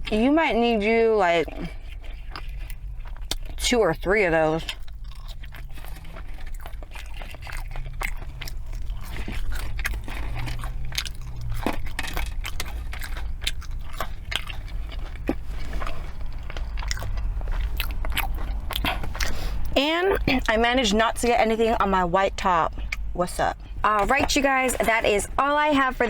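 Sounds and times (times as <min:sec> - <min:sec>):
chewing and mouth sounds: 0:00.0 - 0:25.7
soft crunches: 0:04.6 - 0:19.8.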